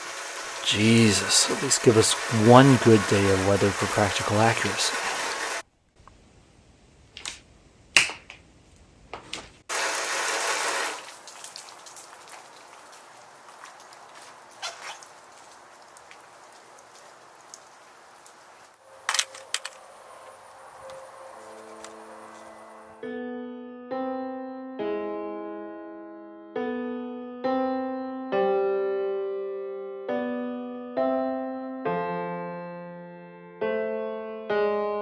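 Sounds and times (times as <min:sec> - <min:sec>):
rain with drips and taps: 0:00.0 - 0:06.2, 0:09.6 - 0:22.9.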